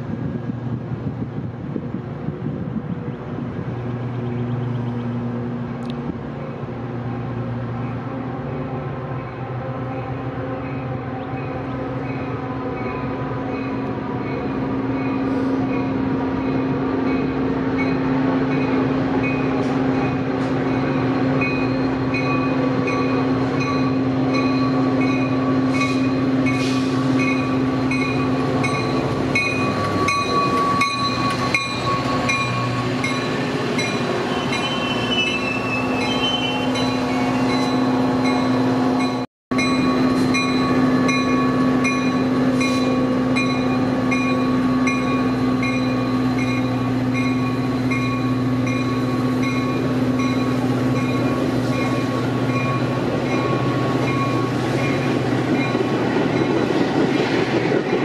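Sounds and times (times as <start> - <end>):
diesel locomotive drone: 0.0 - 58.0
train cars rumbling: 0.0 - 58.0
brief squeal: 34.3 - 37.8.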